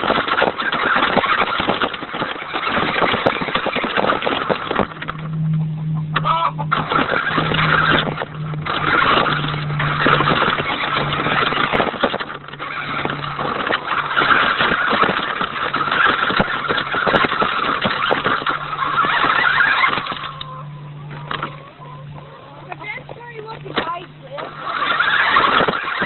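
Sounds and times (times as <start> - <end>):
wheels and body rattling: 0.0 - 26.0
toy truck motor whining: 6.2 - 26.0.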